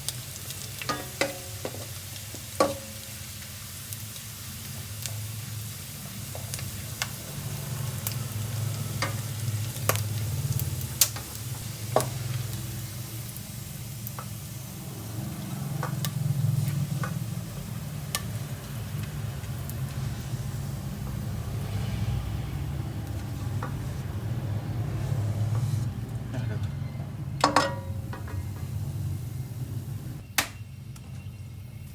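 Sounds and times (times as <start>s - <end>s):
rice sizzling in a pan: 0.0s - 31.9s
utensil clicking against pan: 15.7s - 17.2s
low hum: 16.9s - 30.2s.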